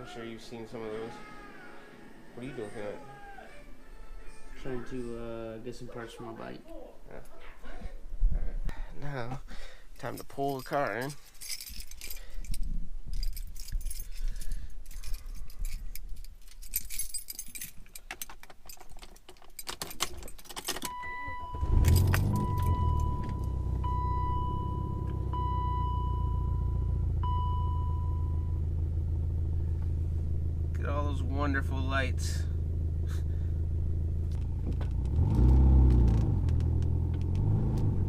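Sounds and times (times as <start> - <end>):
keys jangling: 10.0 - 21.0, 21.7 - 23.6
car engine cranking and idling: 18.1 - 38.0
car warning chime pinging: 20.8 - 28.7.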